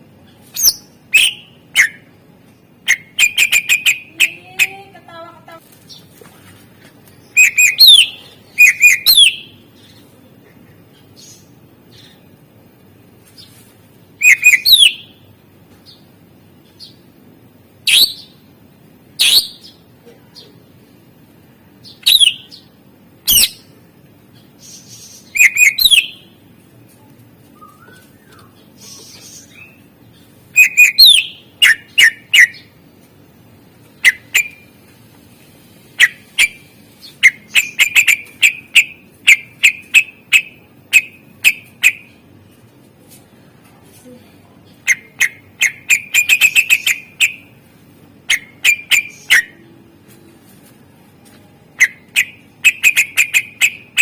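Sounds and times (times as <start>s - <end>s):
bird singing whistles and chirps: 0.6s - 2.0s, 7.3s - 9.5s, 14.2s - 15.1s, 22.0s - 22.5s, 25.3s - 26.2s, 27.6s - 29.8s, 30.6s - 32.6s.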